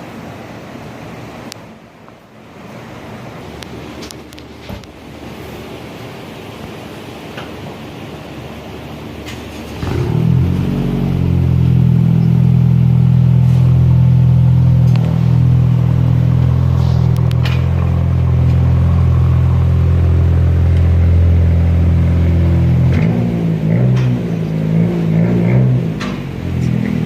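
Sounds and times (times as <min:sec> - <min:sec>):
car engine idling with deep exhaust: 0:08.5 - 0:27.0.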